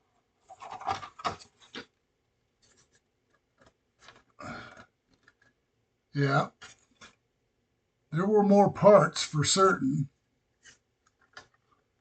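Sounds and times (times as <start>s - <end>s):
plastic model kit rubbing and scraping: 0.4s - 1.8s, 10.6s - 11.7s.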